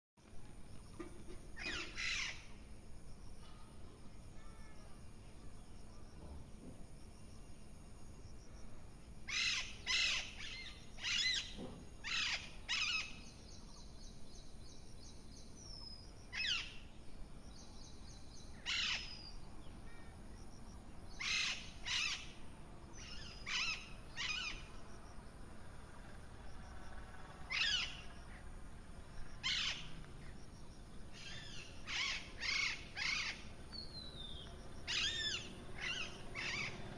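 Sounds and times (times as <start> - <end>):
parrot squawking: 34.9 - 36.7.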